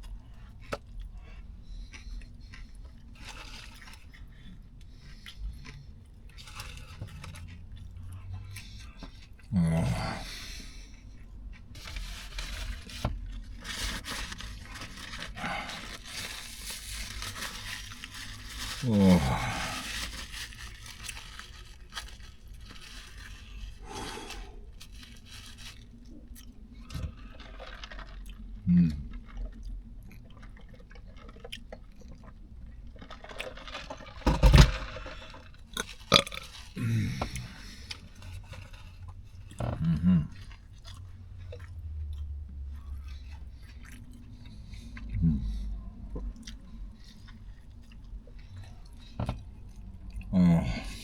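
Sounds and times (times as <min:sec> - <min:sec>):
chewing: 0:00.0 - 0:51.0
paper wrapper rustling and tearing: 0:11.8 - 0:26.0, 0:27.2 - 0:28.2, 0:33.0 - 0:38.9
person burping: 0:36.2 - 0:37.6, 0:39.6 - 0:40.3, 0:50.3 - 0:51.0.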